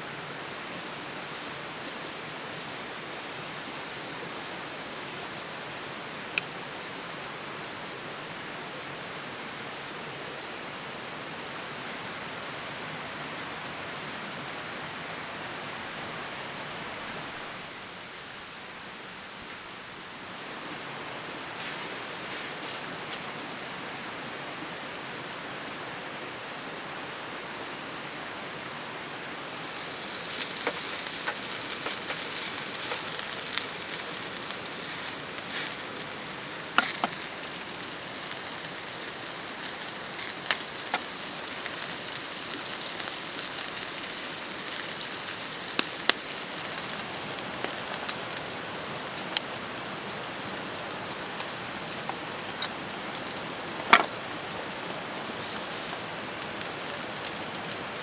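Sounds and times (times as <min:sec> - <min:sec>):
food sizzling in a hot pan: 0:20.2 - 0:26.5, 0:29.4 - 0:58.0.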